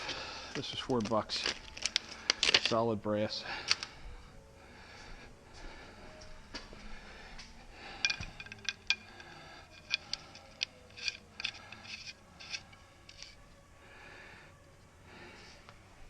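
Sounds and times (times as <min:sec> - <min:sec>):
metal tools clinking: 0:00.6 - 0:02.9, 0:07.9 - 0:13.4.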